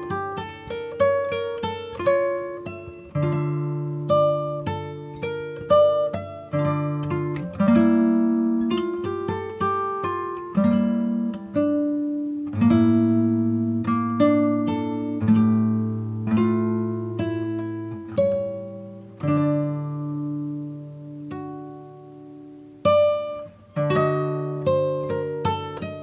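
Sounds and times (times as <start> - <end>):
acoustic guitar chords: 0.0 - 26.0.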